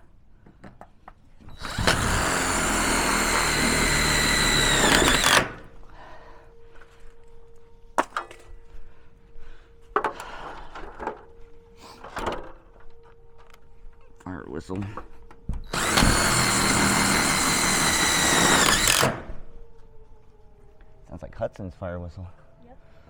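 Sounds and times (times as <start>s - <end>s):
power drill driving a screw: 1.5s - 5.8s, 15.7s - 19.4s.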